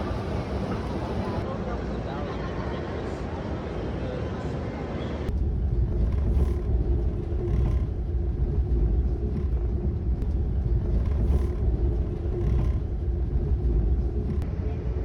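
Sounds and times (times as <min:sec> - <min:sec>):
moving vehicle rumble: 0:00.0 - 0:01.5, 0:05.3 - 0:15.0
faint steady hum: 0:00.0 - 0:01.6, 0:05.3 - 0:15.0.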